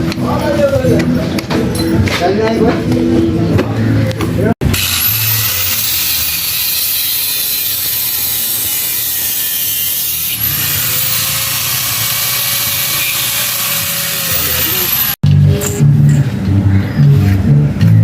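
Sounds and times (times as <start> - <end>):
ratchet-like tool noise: 4.6 - 15.8.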